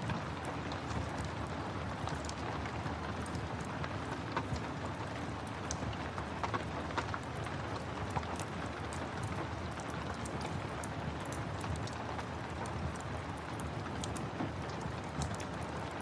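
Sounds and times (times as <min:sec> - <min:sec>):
steady rain: 0:00.0 - 0:16.0
wood fire crackling and popping: 0:00.0 - 0:16.0.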